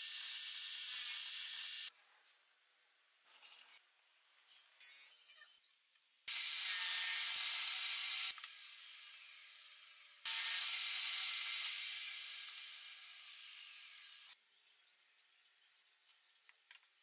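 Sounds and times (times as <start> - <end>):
table saw cutting wood: 6.3 - 14.4.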